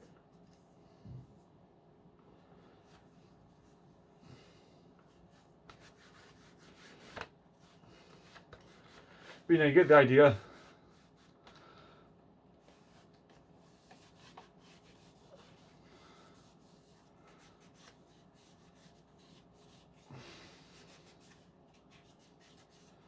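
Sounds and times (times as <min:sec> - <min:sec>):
faint wiping on plastic: 0:05.0 - 0:11.6, 0:12.6 - 0:23.0.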